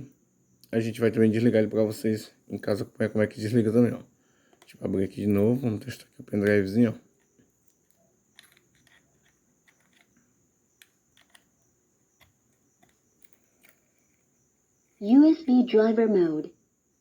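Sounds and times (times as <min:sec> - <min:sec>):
small plastic clicks: 0:07.2 - 0:11.5, 0:12.2 - 0:14.2.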